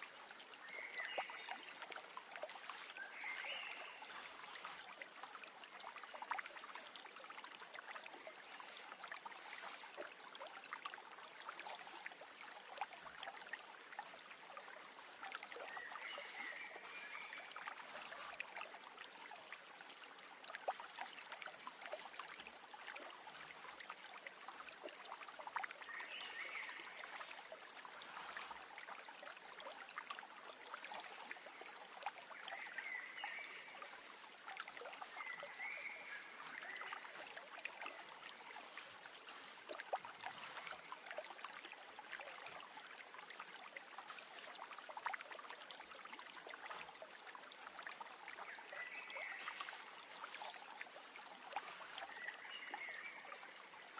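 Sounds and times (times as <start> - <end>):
stream water trickling: 0.0 - 53.9
short bird chirps: 2.6 - 4.8, 35.0 - 37.2.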